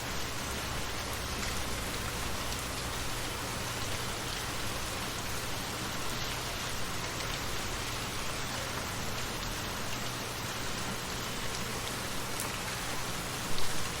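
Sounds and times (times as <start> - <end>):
light rain falling: 0.0 - 14.0.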